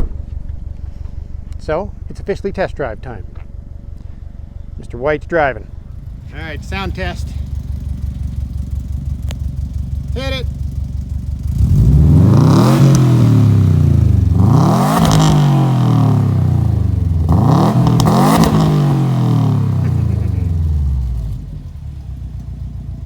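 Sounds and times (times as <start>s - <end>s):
engine idling: 5.4s - 23.0s
car engine revving: 5.6s - 23.0s.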